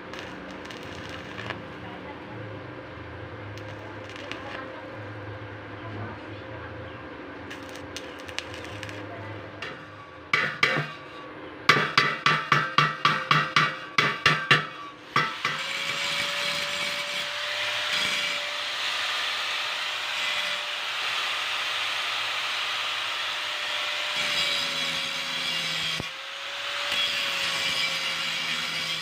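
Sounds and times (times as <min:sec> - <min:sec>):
power tool grinding: 0:15.2 - 0:29.0.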